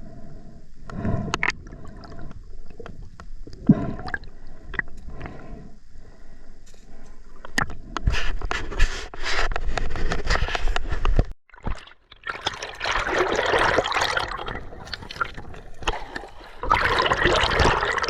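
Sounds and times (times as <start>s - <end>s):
river water sloshing and gurgling: 11.5s - 18.0s.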